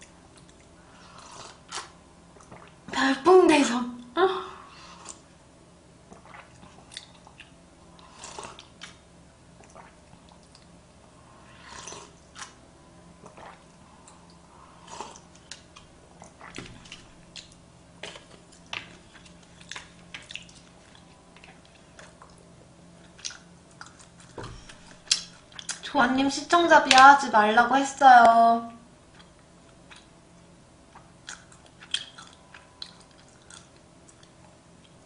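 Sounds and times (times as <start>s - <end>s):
chewing sushi: 6.1s - 9.0s, 13.2s - 25.8s, 29.0s - 30.2s, 30.9s - 35.0s.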